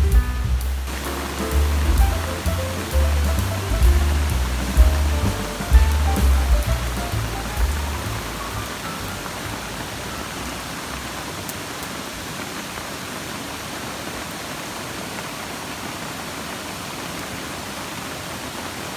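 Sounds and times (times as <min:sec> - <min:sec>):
campfire hissing: 0:00.0 - 0:11.2
faint fire pops: 0:00.1 - 0:09.2.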